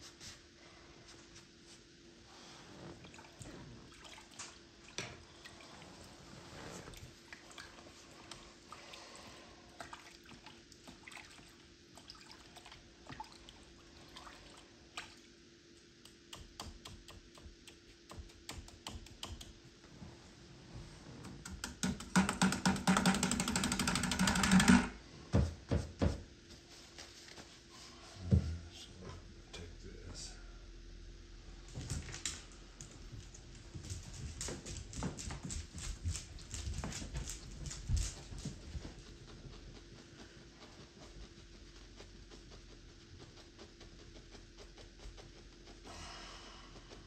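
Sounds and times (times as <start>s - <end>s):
knocks: 21.5s - 26.2s
scratchy painting sounds: 38.2s - 47.0s.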